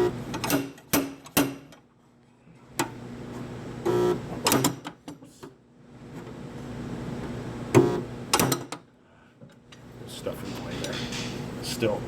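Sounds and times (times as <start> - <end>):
dent puller electric buzz: 0.0 - 0.5, 3.8 - 4.8, 7.7 - 8.7.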